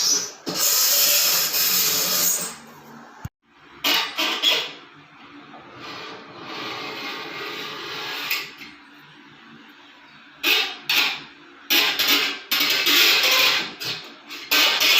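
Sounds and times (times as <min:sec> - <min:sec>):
harsh scraping: 0:05.6 - 0:08.5.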